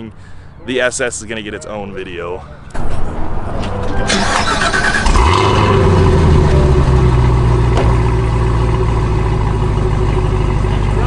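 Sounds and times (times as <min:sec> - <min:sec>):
car engine starting and idling: 0:02.7 - 0:11.0.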